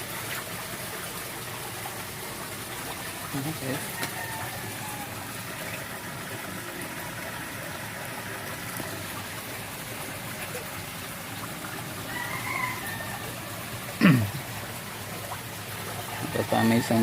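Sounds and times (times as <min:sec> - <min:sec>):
outdoor background hiss: 0:00.0 - 0:17.0
distant rooster crowing: 0:03.9 - 0:05.3, 0:12.0 - 0:13.6, 0:16.1 - 0:17.0.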